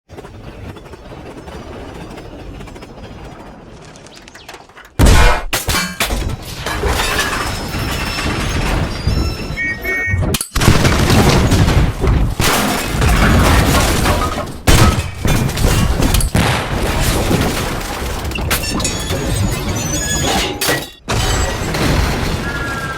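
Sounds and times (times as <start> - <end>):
smashing and breaking: 5.0 - 9.6, 10.6 - 22.9.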